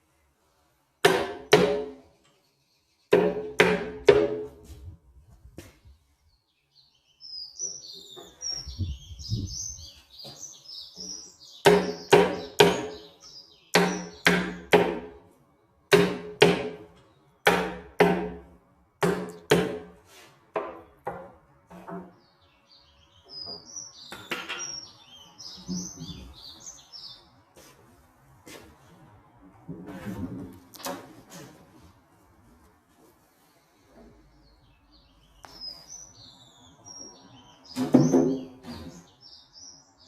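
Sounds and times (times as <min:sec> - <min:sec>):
sharp knocks on solid wood: 0:01.0 - 0:02.0, 0:03.1 - 0:04.5, 0:11.6 - 0:13.0, 0:13.7 - 0:15.2, 0:15.9 - 0:16.8, 0:17.4 - 0:18.4, 0:19.0 - 0:19.9
birds chirping: 0:05.8 - 0:14.8, 0:21.9 - 0:27.6, 0:33.4 - 0:40.0.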